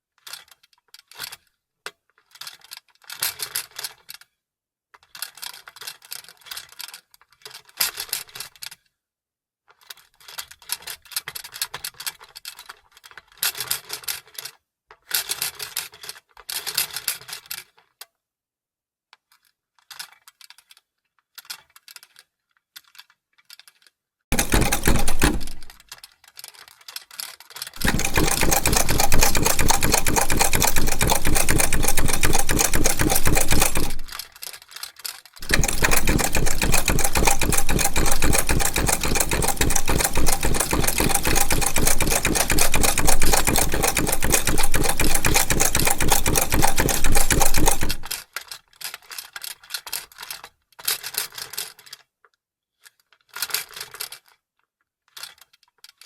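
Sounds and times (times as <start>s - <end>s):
sewing machine clicking and handling: 19.2s - 52.1s, 55.1s - 56.0s
sewing machine stitching: 24.3s - 25.8s, 27.8s - 34.2s, 35.4s - 48.2s.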